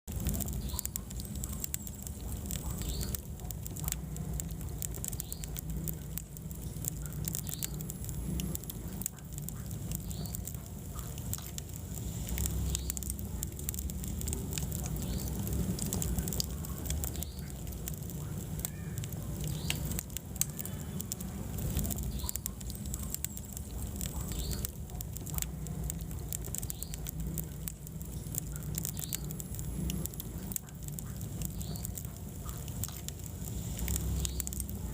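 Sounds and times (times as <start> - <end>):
fire crackling and popping: 0.0 - 34.9.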